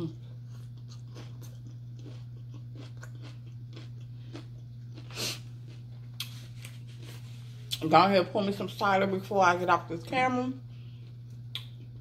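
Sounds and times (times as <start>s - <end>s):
low electrical hum: 0.0s - 12.0s
taco crunching: 0.2s - 7.8s.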